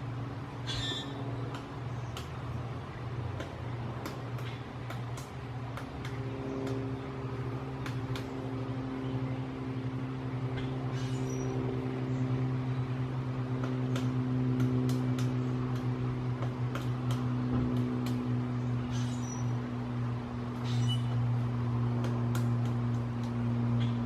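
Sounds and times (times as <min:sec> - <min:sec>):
low engine drone: 0:00.0 - 0:24.0
woodpecker pecking at wood: 0:00.7 - 0:08.7, 0:13.4 - 0:19.5, 0:20.5 - 0:24.0.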